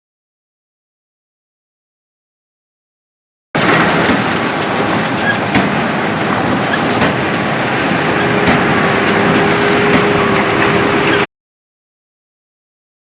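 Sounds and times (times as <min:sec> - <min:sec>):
baler mechanical clatter: 0:03.6 - 0:11.3.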